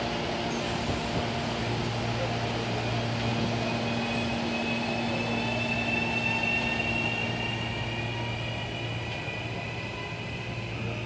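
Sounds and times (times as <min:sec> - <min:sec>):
electric train low hum: 0:00.0 - 0:11.0.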